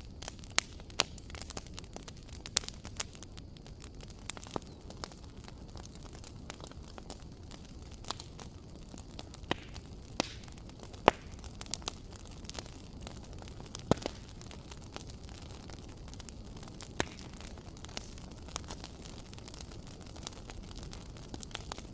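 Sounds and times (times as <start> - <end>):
wood fire crackling and popping: 0.0 - 21.9.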